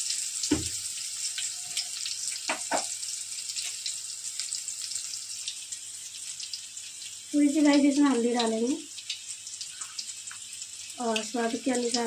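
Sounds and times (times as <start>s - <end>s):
onion frying in hot oil: 0.0s - 12.0s
dull knock: 0.5s - 0.8s.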